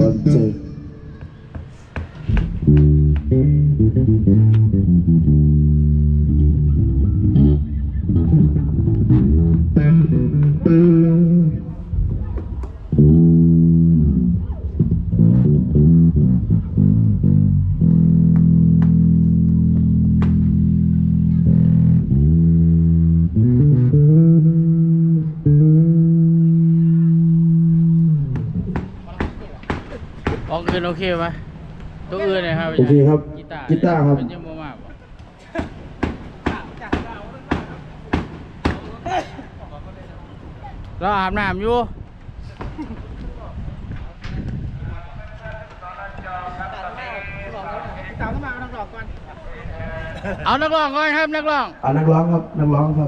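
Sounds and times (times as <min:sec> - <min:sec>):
electric bass guitar: 0:00.0 - 0:01.3, 0:02.3 - 0:29.2.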